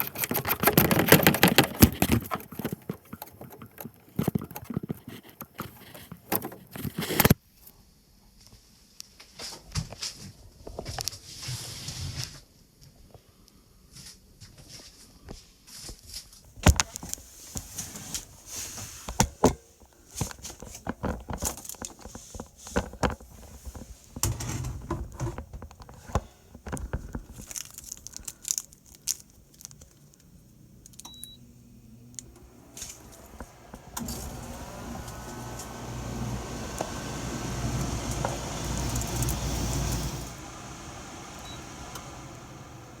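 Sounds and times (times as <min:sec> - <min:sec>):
clicks knocks and rustling: 0:00.0 - 0:07.4.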